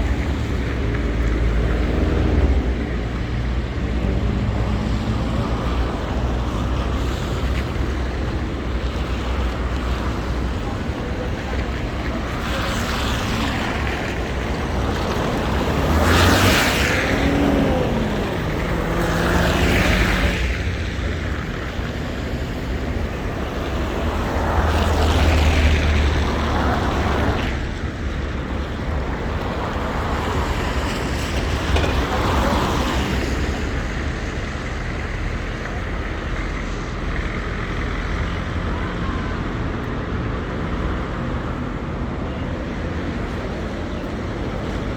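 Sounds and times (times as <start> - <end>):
steady background noise: 0.0 - 44.9
tyres hissing on wet road: 0.0 - 44.9
vehicles passing: 0.0 - 44.9.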